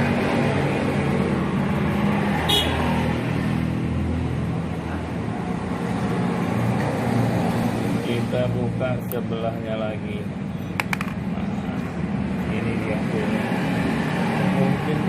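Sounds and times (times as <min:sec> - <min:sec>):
road traffic engine noise: 0:00.0 - 0:15.0.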